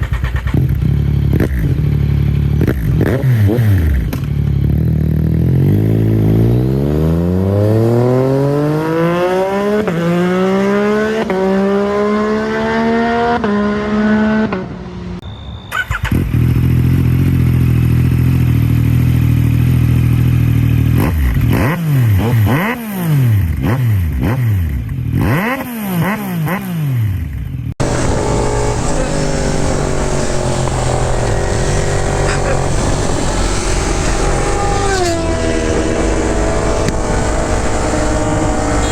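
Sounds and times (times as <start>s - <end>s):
motorcycle engine accelerating: 0.0s - 14.7s, 15.9s - 38.9s
loud wind noise: 27.8s - 38.9s.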